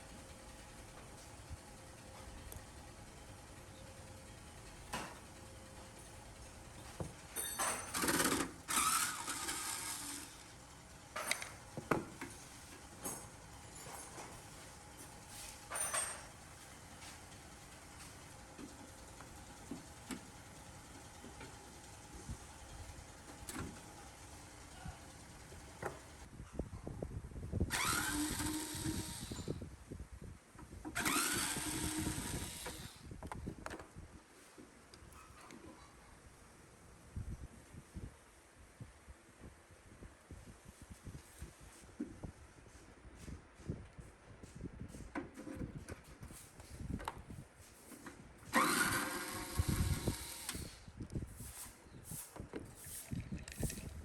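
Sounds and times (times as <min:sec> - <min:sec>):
power tool whining: 0:07.4 - 0:11.6, 0:27.7 - 0:29.6, 0:30.9 - 0:33.1, 0:48.5 - 0:50.9.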